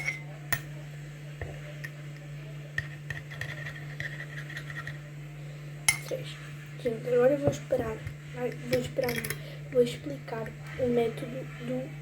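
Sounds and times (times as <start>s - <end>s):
steady low hum: 0.0s - 12.0s
spoon scooping powder: 2.7s - 5.0s.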